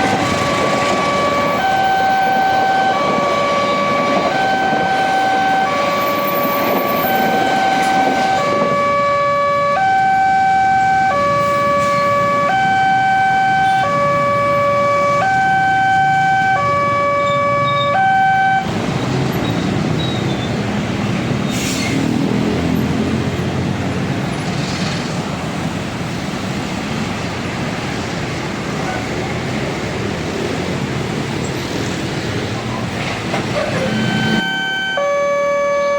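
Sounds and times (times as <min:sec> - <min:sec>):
two-tone crossing alarm: 0:00.0 - 0:18.7, 0:33.6 - 0:35.9.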